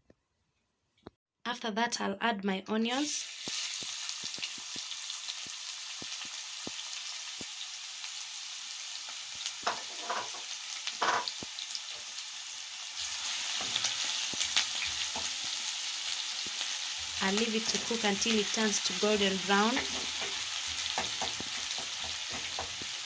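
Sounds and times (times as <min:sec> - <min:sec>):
onions sizzling in oil: 0:03.0 - 0:23.0
scraping in saucepan: 0:09.7 - 0:11.3.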